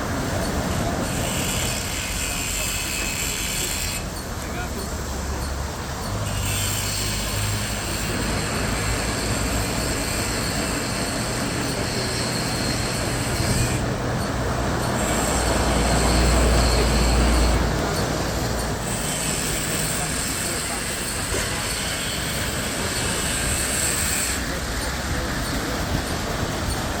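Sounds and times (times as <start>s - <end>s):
car wash machine hissing: 0.0s - 27.0s.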